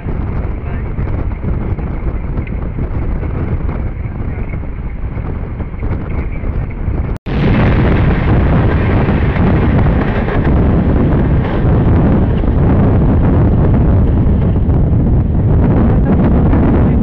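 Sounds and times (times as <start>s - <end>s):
train rumble: 0.0s - 17.0s
wind rushing: 0.0s - 17.0s
passing train coaches: 8.4s - 17.0s.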